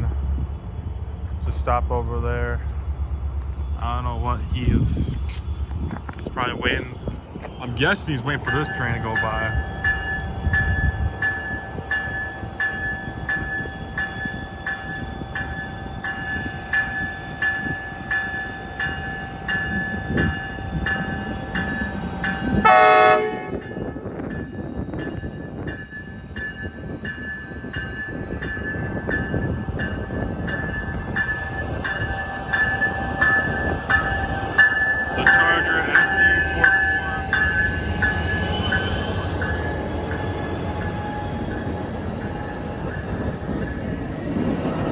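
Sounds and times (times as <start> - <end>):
freight train rumbling: 0.0 - 44.9
crossing warning bell ringing: 5.7 - 44.9
locomotive horn blast: 22.6 - 23.8.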